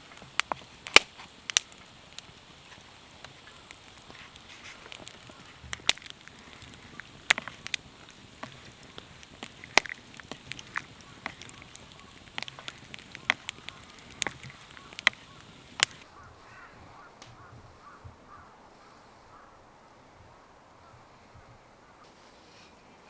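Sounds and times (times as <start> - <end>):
wood fire crackling and popping: 0.0 - 16.1
bird calling faintly: 2.6 - 23.0.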